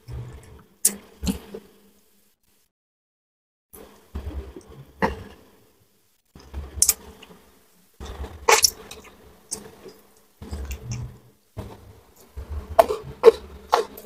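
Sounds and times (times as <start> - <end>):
crispy fish being chewed: 8.0 - 14.0.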